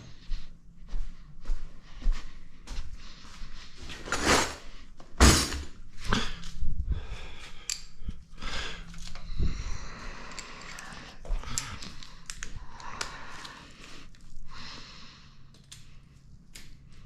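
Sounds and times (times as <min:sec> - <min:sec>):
metal parts clicking and clinking: 0:10.2 - 0:13.5.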